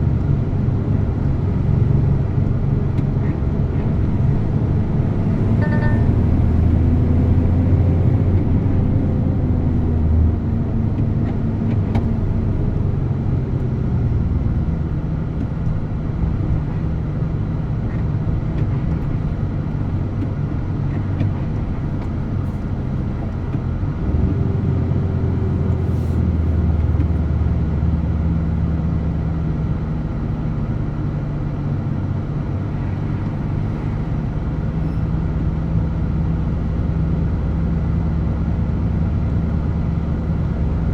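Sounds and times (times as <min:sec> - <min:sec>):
truck diesel engine running: 0:00.0 - 0:17.7.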